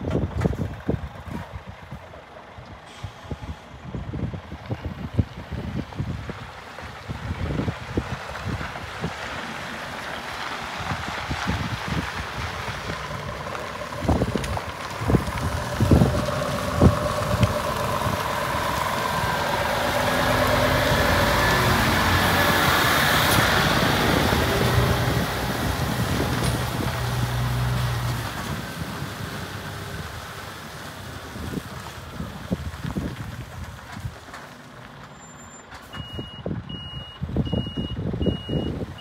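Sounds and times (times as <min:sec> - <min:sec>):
truck diesel engine running: 0:00.1 - 0:39.0.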